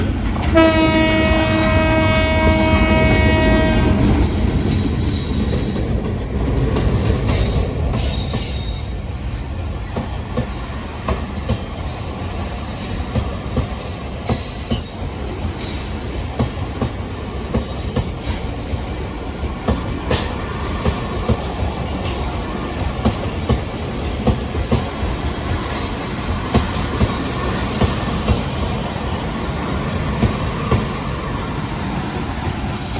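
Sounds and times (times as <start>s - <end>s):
train wheels rumbling on rail: 0.0s - 32.9s
train horn: 0.5s - 4.8s.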